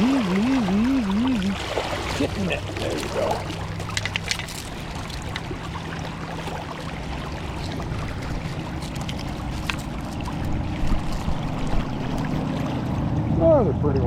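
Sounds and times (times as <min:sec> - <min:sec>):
river water running: 0:00.0 - 0:13.9.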